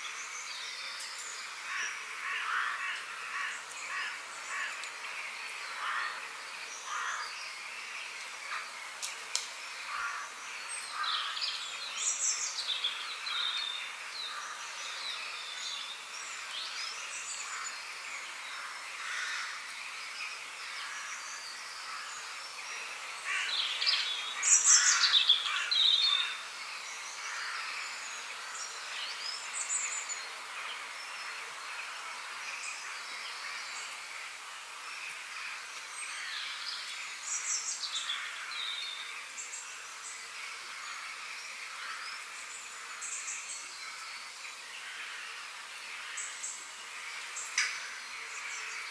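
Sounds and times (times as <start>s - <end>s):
faint outdoor hiss: 0.0s - 48.9s
birds chirping and singing: 9.8s - 34.0s.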